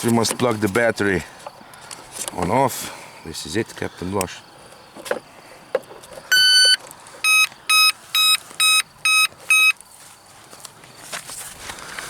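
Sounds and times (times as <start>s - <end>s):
electronic speed controller beeps: 6.3s - 9.8s.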